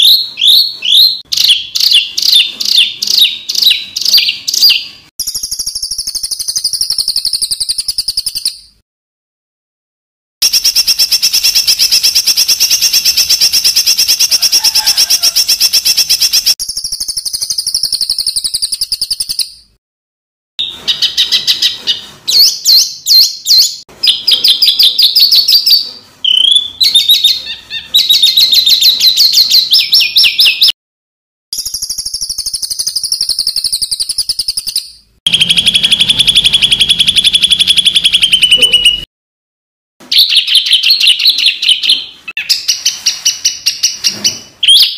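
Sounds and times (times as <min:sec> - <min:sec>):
songbird fast trilling song: 0:00.0 - 0:08.7, 0:10.4 - 0:19.6.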